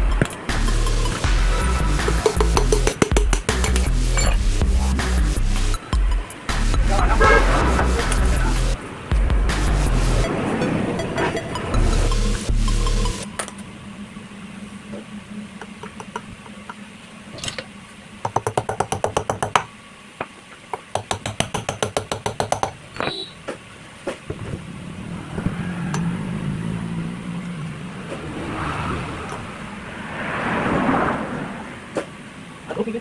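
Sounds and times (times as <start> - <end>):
low steady hum: 9.9 - 33.0.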